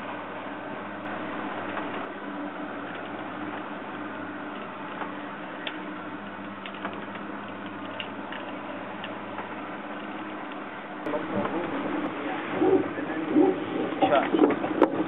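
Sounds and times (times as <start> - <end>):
boat engine running: 0.0 - 15.0
faint irregular clicks: 2.9 - 3.7, 4.5 - 10.7.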